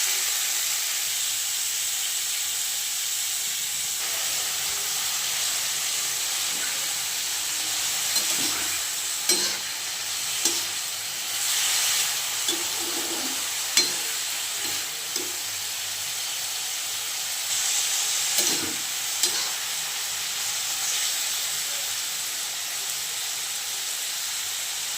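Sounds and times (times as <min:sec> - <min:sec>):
food sizzling in a pan: 0:00.0 - 0:24.9
utensil knocking against pan: 0:12.5 - 0:15.4.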